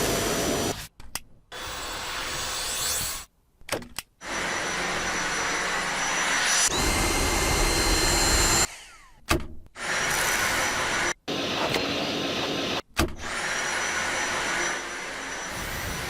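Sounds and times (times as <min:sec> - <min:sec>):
vacuum cleaner running: 0:00.0 - 0:00.7, 0:04.2 - 0:08.9, 0:09.8 - 0:16.0.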